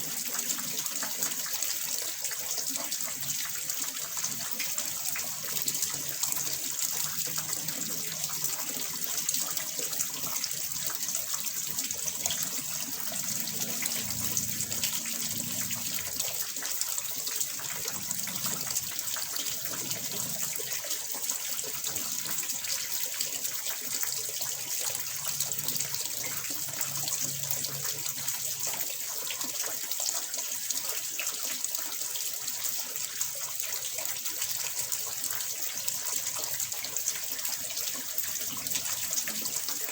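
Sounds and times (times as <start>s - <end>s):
water pouring into a pond: 0.0s - 39.9s.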